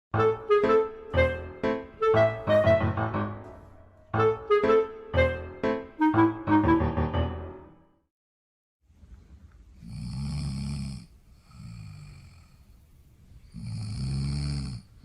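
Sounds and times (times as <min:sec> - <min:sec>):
animal snoring: 0:09.8 - 0:12.6, 0:13.4 - 0:15.0.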